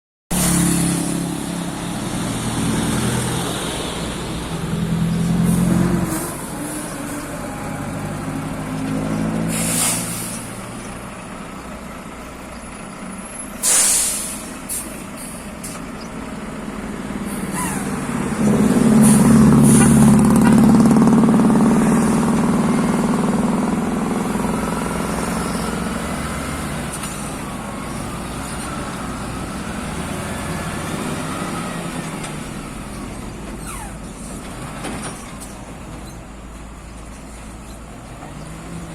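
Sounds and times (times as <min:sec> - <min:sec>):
heavy truck engines revving: 0:00.3 - 0:38.9
air release hisses: 0:09.5 - 0:10.5, 0:13.6 - 0:15.8.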